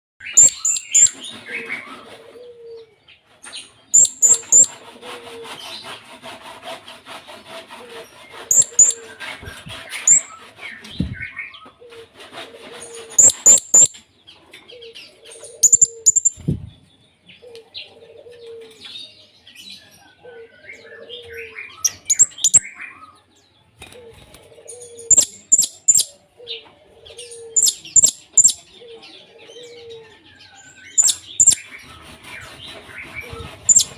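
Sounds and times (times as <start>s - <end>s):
parrot shrill chirps: 0.3s - 1.2s, 4.0s - 4.7s, 8.5s - 9.0s, 13.2s - 14.0s, 15.6s - 16.4s, 22.0s - 22.6s, 27.6s - 28.6s.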